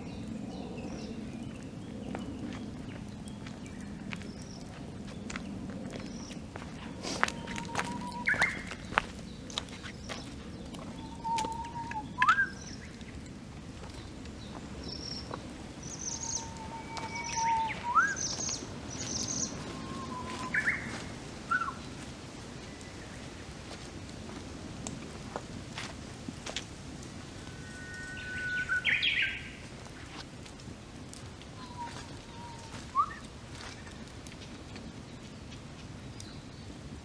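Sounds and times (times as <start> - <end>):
campfire crackling and popping: 0.0 - 28.1, 28.7 - 37.0
bird whistling with upward flourish: 7.3 - 8.7, 11.0 - 12.8, 16.0 - 20.9, 21.5 - 21.8, 31.6 - 33.2.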